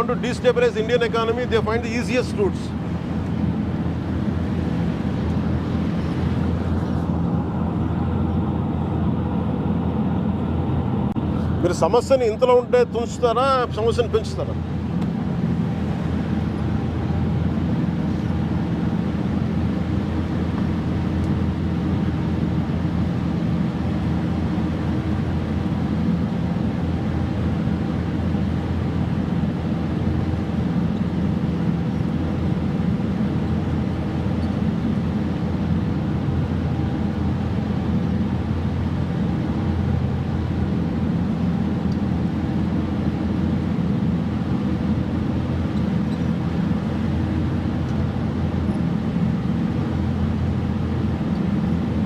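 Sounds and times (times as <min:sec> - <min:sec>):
boat engine droning: 0:00.0 - 0:52.0.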